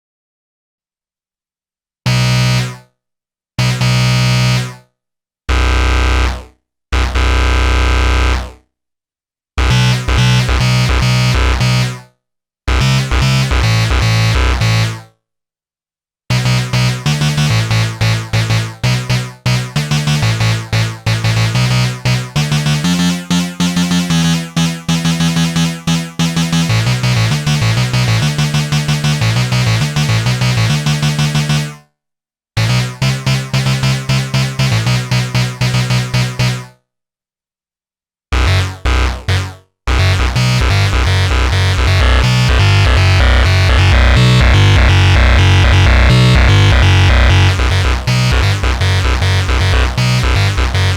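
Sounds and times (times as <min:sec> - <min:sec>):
synthesizer lead notes: 0:40.0 - 0:50.9.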